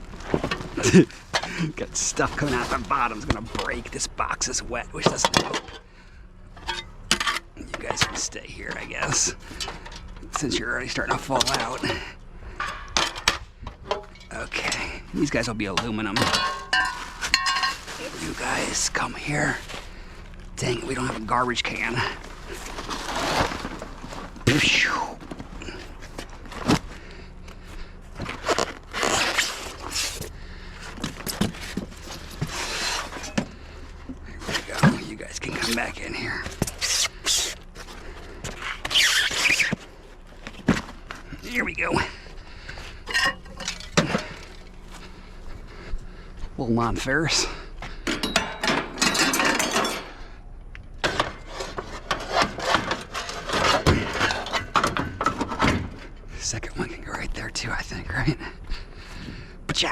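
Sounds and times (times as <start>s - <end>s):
scrap scraping and rubbing: 21.7s - 24.4s, 28.2s - 30.3s, 31.3s - 33.4s, 35.4s - 39.9s, 51.1s - 54.8s
scrap items scraping and knocking: 31.0s - 33.5s, 51.0s - 56.0s.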